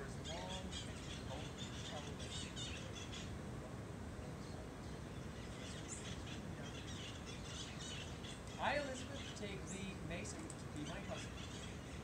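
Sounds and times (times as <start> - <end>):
birds chirping: 0.0 - 12.0
low outdoor rumble: 0.0 - 12.0.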